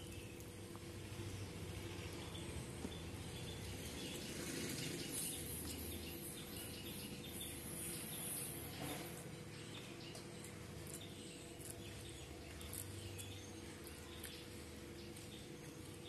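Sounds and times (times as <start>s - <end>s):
person chewing food: 10.8s - 14.4s.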